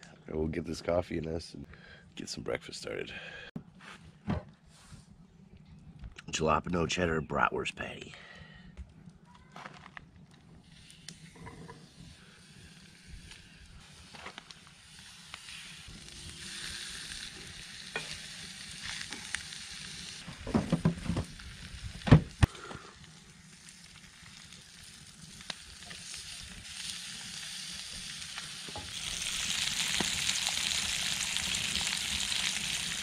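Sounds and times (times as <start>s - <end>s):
meat sizzling in a skillet: 11.8s - 20.2s, 23.1s - 33.0s.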